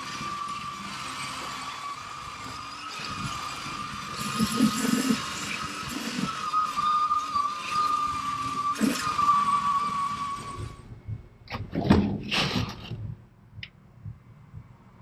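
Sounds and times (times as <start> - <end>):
power tool whining: 0.0 - 10.8.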